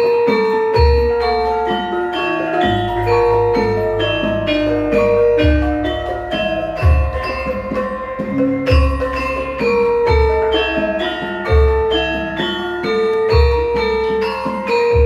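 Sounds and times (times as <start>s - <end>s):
metallophones playing melody: 0.0s - 15.0s
deep low gong strokes: 2.4s - 9.5s.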